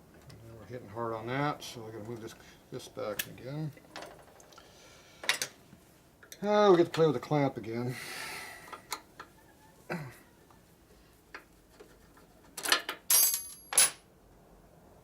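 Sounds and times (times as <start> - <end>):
metal tools clinking: 12.6 - 14.0.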